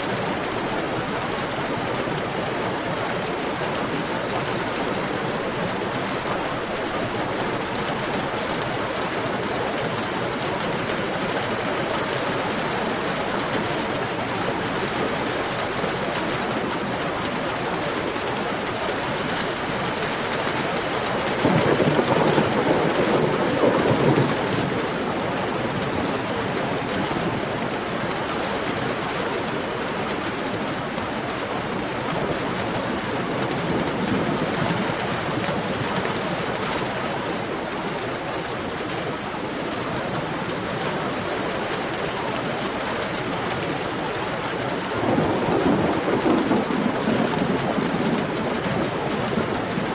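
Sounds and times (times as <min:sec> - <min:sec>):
heavy rain: 0:00.0 - 0:49.9
low rumble of thunder: 0:21.0 - 0:27.4, 0:44.8 - 0:49.9.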